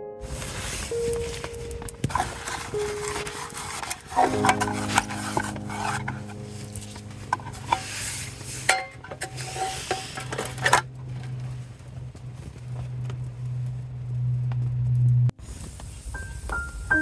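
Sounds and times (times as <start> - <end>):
steady low hum: 0.2 - 15.4
metal utensils clinking on a pan: 8.7 - 10.9.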